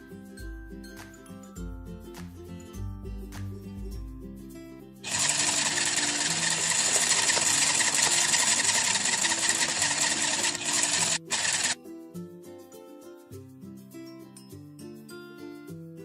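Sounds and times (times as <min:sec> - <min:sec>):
soft background music: 0:00.0 - 0:05.0, 0:11.8 - 0:16.0
small electric motor whirring: 0:05.0 - 0:11.8.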